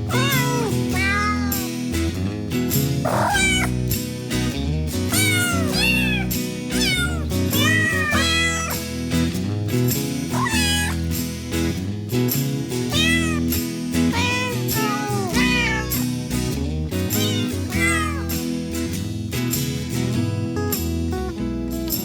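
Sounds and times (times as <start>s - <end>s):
cat meowing: 0.1s - 1.7s, 3.1s - 3.8s, 5.1s - 8.8s, 10.3s - 11.0s, 12.9s - 13.5s, 14.1s - 16.1s, 17.2s - 18.4s.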